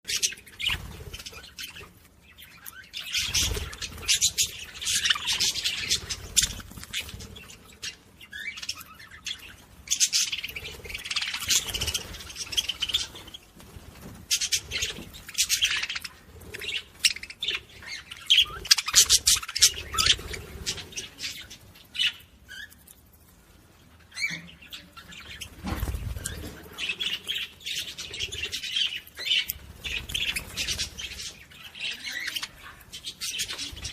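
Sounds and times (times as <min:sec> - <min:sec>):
budgerigars chattering and squawking: 0:00.1 - 0:22.8, 0:24.0 - 0:33.9.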